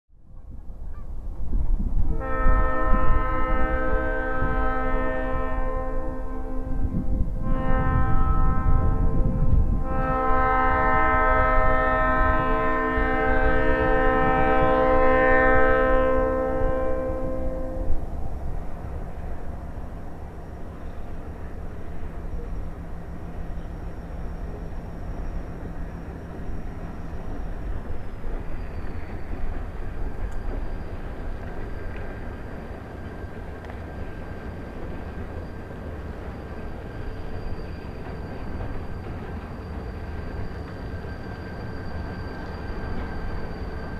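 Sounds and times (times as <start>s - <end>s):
diesel train rumble: 0.2s - 43.9s
locomotive air horn blast: 2.1s - 18.0s.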